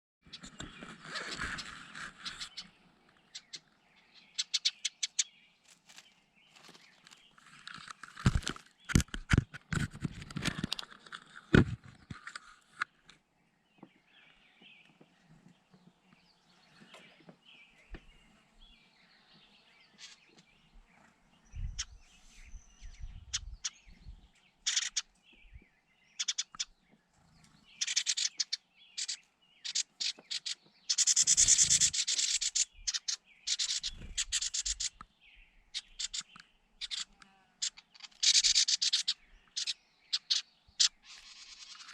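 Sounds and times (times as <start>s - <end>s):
birds chirping faintly: 0.2s - 41.9s
scratchy rubbing noise: 0.4s - 2.7s, 31.0s - 32.5s.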